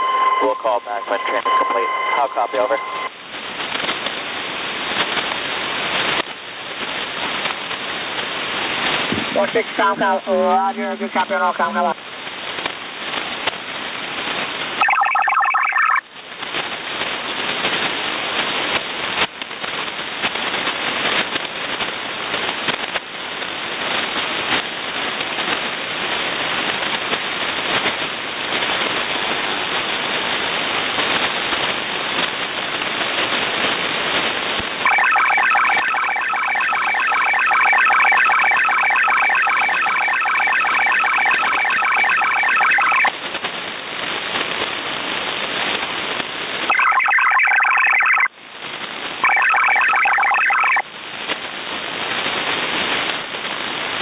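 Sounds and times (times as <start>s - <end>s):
warbling digital data signal: 0.0s - 3.1s, 14.8s - 16.0s, 34.8s - 43.1s, 46.7s - 48.3s, 49.2s - 50.8s
burst of data tones: 0.0s - 3.2s, 14.8s - 16.0s, 34.8s - 43.1s, 46.7s - 48.3s, 49.2s - 50.8s
radio static hiss and crackles: 0.0s - 54.0s.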